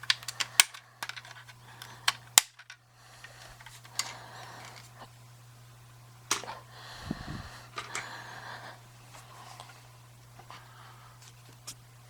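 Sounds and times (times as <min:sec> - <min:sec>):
plastic toy clicks and taps: 0:00.0 - 0:02.8
faint low hum: 0:00.0 - 0:12.0.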